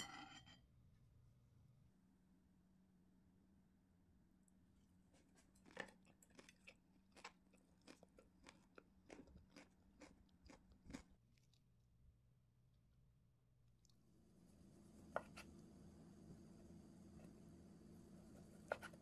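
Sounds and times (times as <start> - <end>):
crisp chewing crunches: 5.2 - 11.6.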